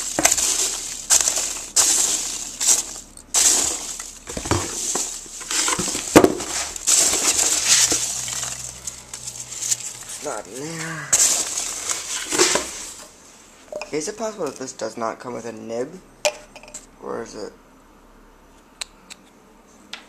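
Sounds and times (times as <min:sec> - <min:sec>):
packing material crinkling: 0:00.0 - 0:13.2.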